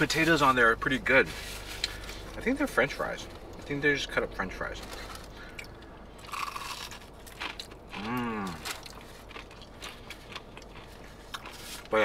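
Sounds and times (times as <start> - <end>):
chewing and crunching food: 4.7 - 12.0
person humming: 8.0 - 8.6.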